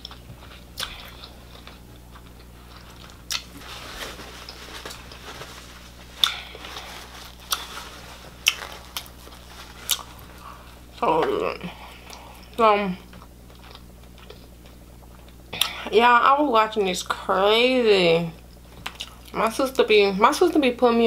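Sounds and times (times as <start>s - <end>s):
person chewing: 0.0s - 15.9s, 18.6s - 19.4s.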